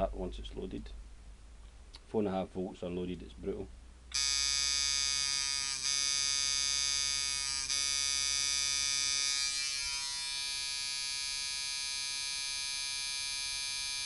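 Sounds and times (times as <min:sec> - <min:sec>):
tattoo machine buzzing: 0:04.1 - 0:14.0.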